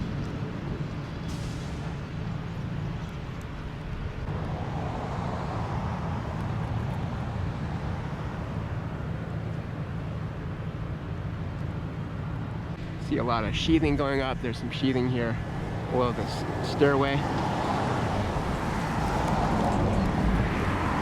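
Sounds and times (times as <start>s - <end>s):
road traffic rumble: 0.0s - 21.0s
vehicle passing: 3.8s - 9.9s, 12.2s - 21.0s.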